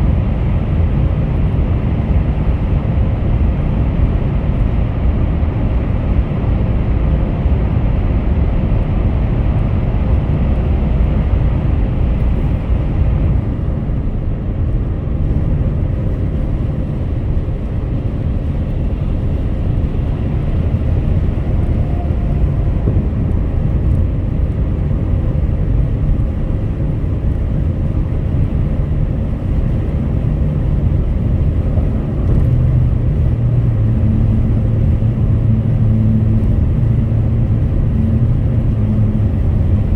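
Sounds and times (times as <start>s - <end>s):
car engine hum: 0.0s - 39.9s
low steady hum: 0.0s - 39.9s
tyre and road rumble: 0.0s - 39.9s.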